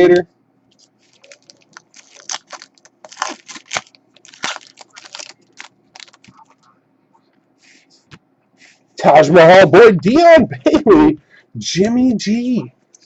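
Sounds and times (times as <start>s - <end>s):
foil wrappers crinkling and tearing: 0.8s - 6.6s.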